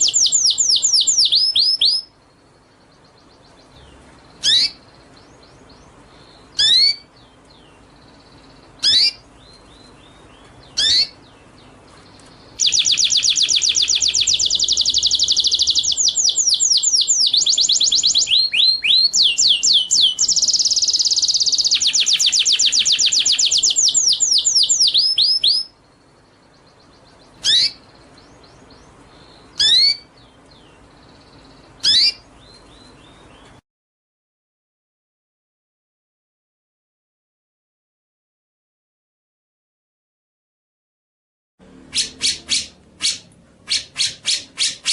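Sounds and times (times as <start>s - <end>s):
fast songbird trill: 0.0s - 2.1s, 3.5s - 11.4s, 12.4s - 33.3s, 41.9s - 44.9s
songbird whistles: 0.0s - 2.1s, 4.4s - 4.8s, 6.3s - 7.1s, 8.8s - 9.2s, 10.7s - 11.2s, 12.6s - 25.8s, 27.3s - 27.9s, 29.2s - 30.1s, 31.8s - 32.9s.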